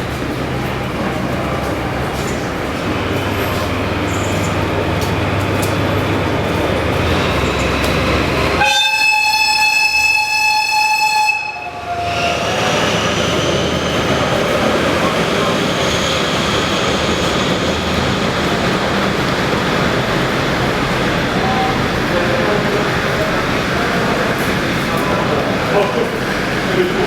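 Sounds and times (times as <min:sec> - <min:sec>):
diesel locomotive engine running: 0:00.0 - 0:27.0
locomotive horn blast: 0:08.5 - 0:12.4.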